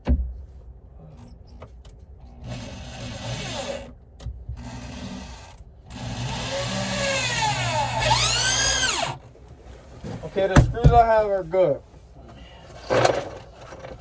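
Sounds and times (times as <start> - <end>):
power drill driving screw into wood: 2.4 - 3.9, 4.6 - 9.2.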